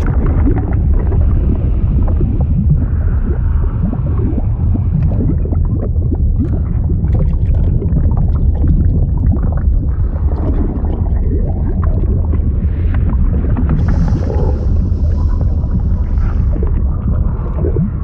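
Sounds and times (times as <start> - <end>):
deep steady rumble: 0.0 - 18.0
water gurgling and bubbling: 0.0 - 18.0.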